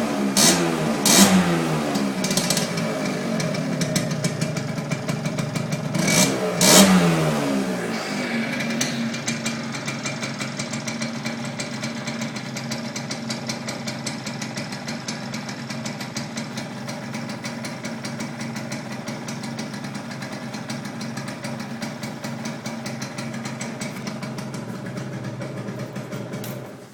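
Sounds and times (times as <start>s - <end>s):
scooter engine revving and idling: 0.0s - 26.9s.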